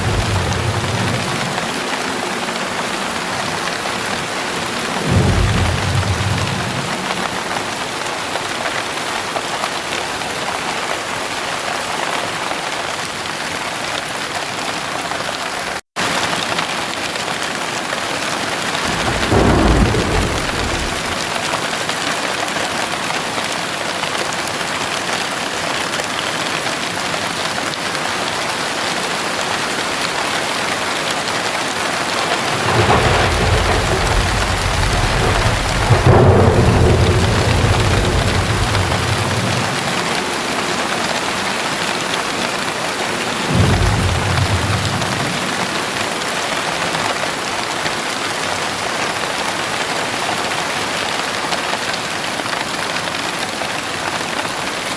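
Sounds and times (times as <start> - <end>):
thunder rumbling: 0.0 - 8.0, 18.6 - 21.8, 32.0 - 46.6
heavy rain pouring: 0.0 - 54.9.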